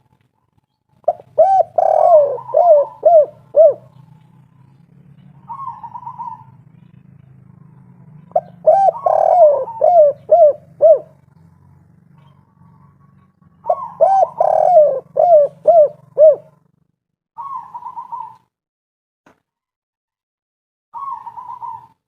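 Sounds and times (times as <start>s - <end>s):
soft rolling coo: 1.0s - 4.3s, 8.3s - 11.3s, 12.7s - 16.8s
dove cooing: 1.0s - 16.8s, 17.4s - 18.5s, 21.0s - 22.0s.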